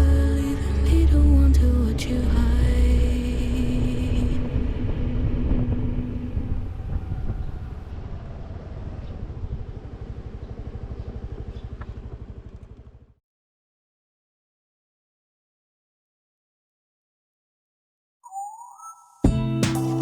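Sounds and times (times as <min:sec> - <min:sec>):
background music: 0:00.0 - 0:06.4, 0:18.2 - 0:20.0
scooter engine running: 0:00.0 - 0:13.2.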